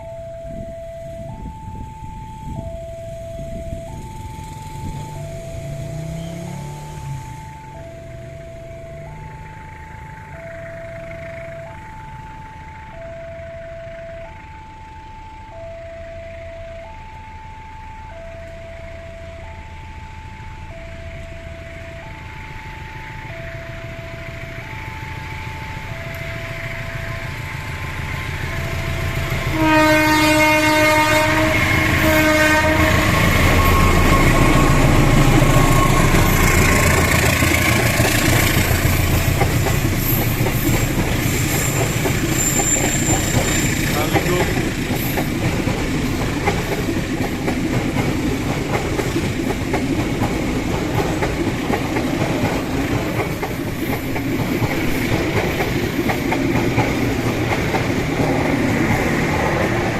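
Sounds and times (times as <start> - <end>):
crossing bell chiming two tones: 0.0 - 12.4, 32.8 - 45.2
train passing with heavy rumble: 0.0 - 59.9
wheels clacking over rail joints: 22.1 - 59.9
locomotive horn blasts: 25.7 - 38.8.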